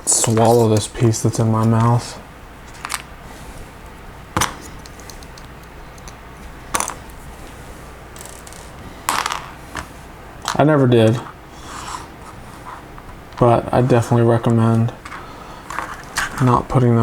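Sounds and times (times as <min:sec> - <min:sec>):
plastic pieces clicking and clattering: 0:04.4 - 0:07.0, 0:08.2 - 0:09.5.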